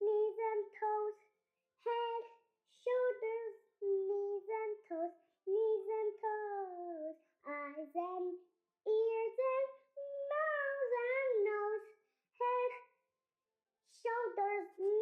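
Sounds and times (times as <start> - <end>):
child singing: 0.0 - 12.9, 13.9 - 15.0.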